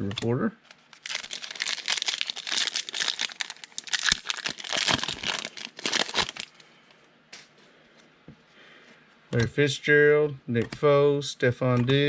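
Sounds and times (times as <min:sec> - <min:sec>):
wrapper tearing and crinkling: 0:00.8 - 0:06.5.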